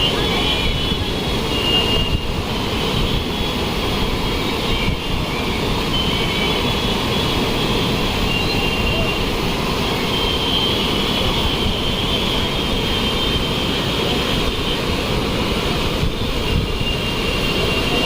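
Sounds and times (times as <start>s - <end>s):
river roaring: 0.0s - 18.0s
faint high whistling tones: 8.2s - 9.2s.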